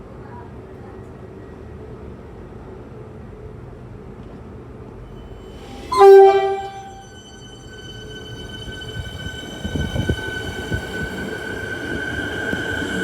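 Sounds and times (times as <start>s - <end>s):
train rumbling: 3.2s - 13.0s
train horn blast: 5.9s - 7.2s.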